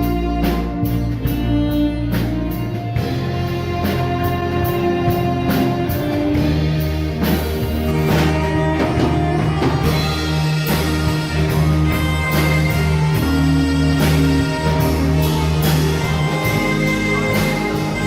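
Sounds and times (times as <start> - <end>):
bass guitar: 0.0 - 18.0
drums keeping a beat: 0.0 - 18.0
electric guitar: 0.0 - 18.0.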